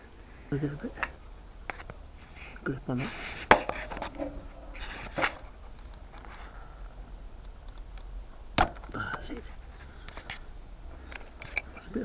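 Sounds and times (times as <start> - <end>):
tool scraping: 1.7 - 6.5
sharp metallic clicks: 7.4 - 12.0.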